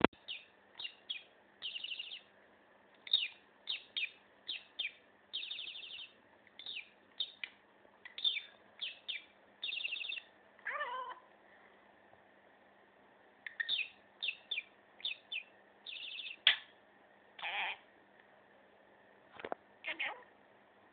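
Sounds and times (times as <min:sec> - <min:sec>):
budgerigar chirping: 0:00.1 - 0:02.3, 0:03.0 - 0:11.2, 0:13.5 - 0:16.7.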